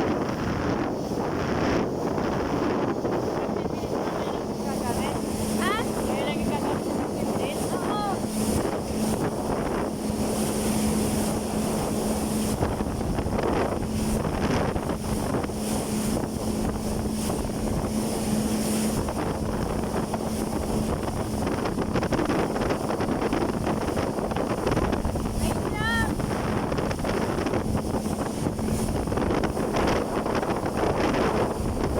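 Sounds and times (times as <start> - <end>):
jet ski engine humming: 0.0 - 31.9
rushing water: 0.0 - 31.9
wind on microphone: 0.0 - 31.9.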